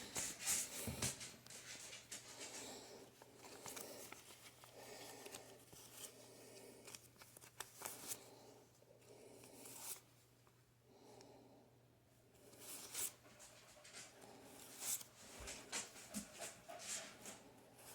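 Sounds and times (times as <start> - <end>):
paper banknotes rustling: 0.0 - 8.4.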